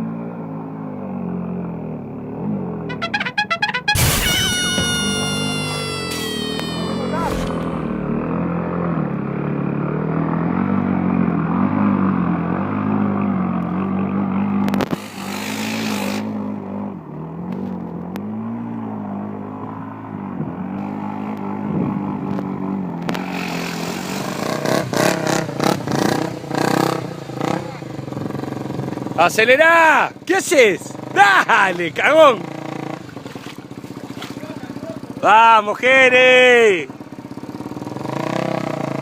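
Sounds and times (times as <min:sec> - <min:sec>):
motorcycle engine revving: 0:20.8 - 0:29.2, 0:32.4 - 0:35.2, 0:36.9 - 0:39.0.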